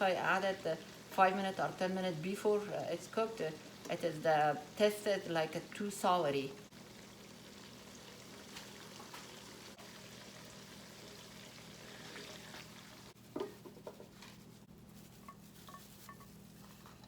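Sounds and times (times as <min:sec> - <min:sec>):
food sizzling in pan: 0:00.0 - 0:13.2.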